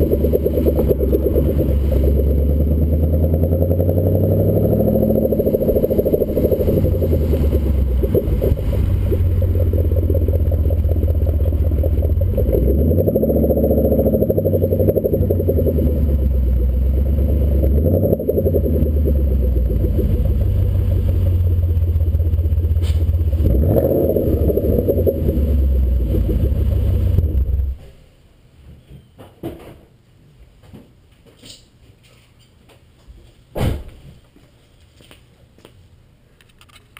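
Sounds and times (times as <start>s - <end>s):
car engine revving: 0.0s - 27.8s.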